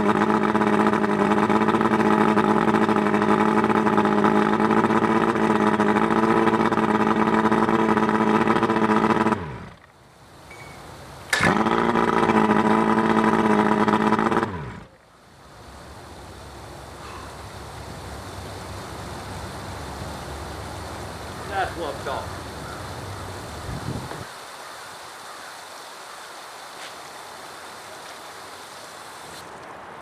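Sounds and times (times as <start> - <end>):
outboard engine running: 0.0 - 9.9, 11.3 - 24.3
faint background hiss: 14.6 - 30.0.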